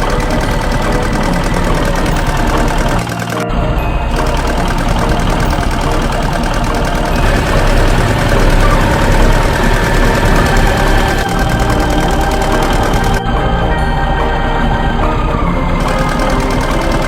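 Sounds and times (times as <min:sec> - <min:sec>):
vehicle engine idling: 0:03.6 - 0:13.2.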